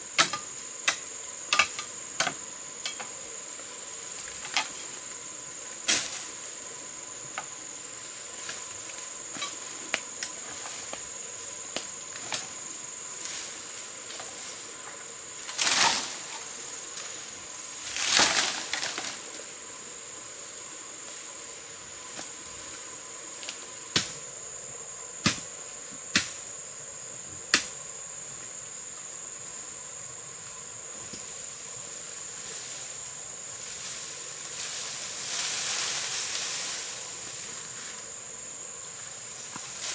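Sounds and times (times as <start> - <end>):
rustling: 32.4 - 38.1.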